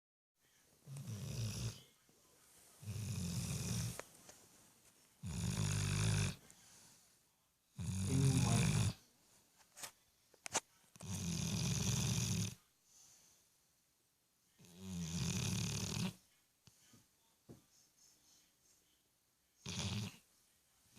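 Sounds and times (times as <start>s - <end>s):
puppy snoring: 0.9s - 1.9s, 2.8s - 4.0s, 5.2s - 6.4s, 7.8s - 9.0s, 11.0s - 12.6s, 14.6s - 16.2s, 19.6s - 20.2s.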